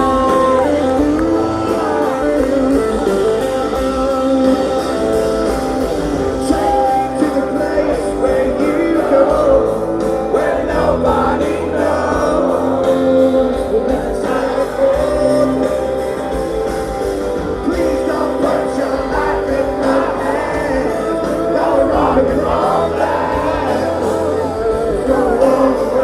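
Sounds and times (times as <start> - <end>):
person singing: 0.0 - 16.6, 17.5 - 26.0
drums: 0.0 - 26.0
electric guitars: 0.0 - 26.0.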